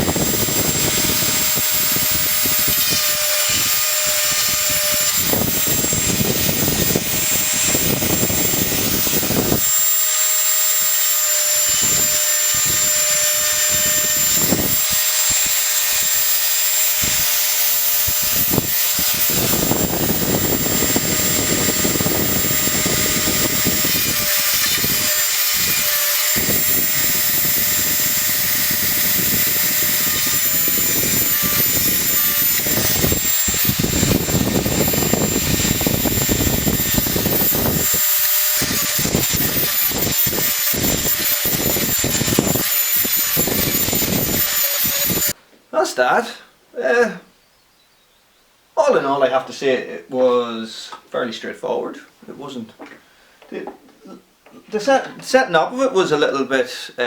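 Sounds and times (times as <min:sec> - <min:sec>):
grinding stone on chainsaw teeth: 0:00.0 - 0:45.4
rotary tool motor whine: 0:00.0 - 0:45.4.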